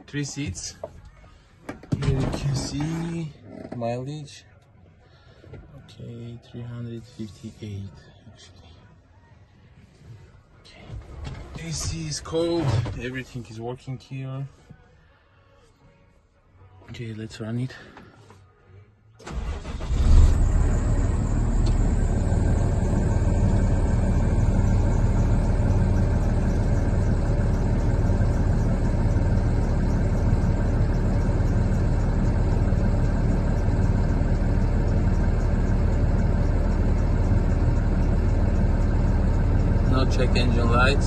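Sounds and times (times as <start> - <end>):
diesel engine cranking: 19.2 - 41.0
diesel engine idling: 19.2 - 41.0.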